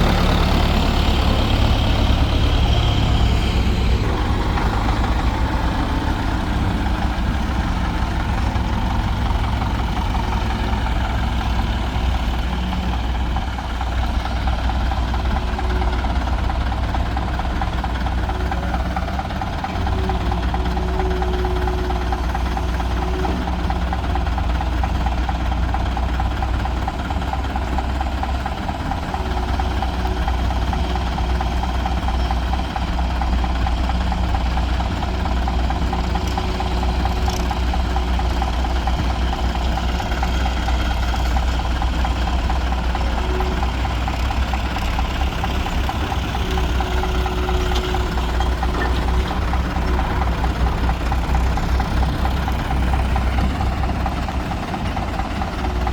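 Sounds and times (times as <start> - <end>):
diesel engines running: 0.0 - 55.9.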